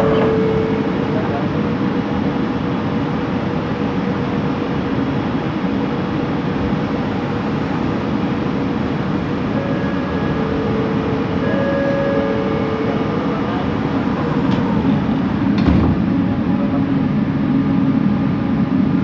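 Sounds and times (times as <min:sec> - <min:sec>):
train motor whine: 0:00.0 - 0:01.8, 0:08.8 - 0:16.4
train running rumble: 0:00.0 - 0:19.0.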